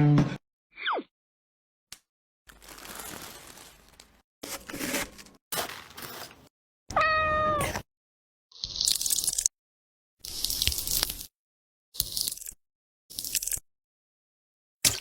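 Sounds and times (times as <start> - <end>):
cat meowing: 6.9 - 7.8.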